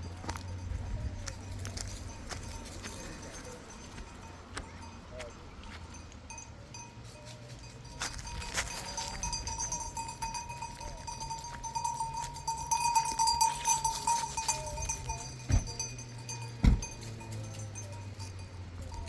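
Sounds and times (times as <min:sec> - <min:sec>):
small bells ringing: 0:00.0 - 0:19.0
dull thumps: 0:16.6 - 0:17.0.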